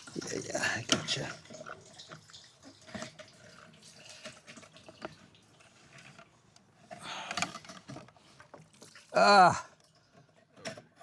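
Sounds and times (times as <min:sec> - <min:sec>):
gasoline dripping and trickling: 0:00.1 - 0:05.7.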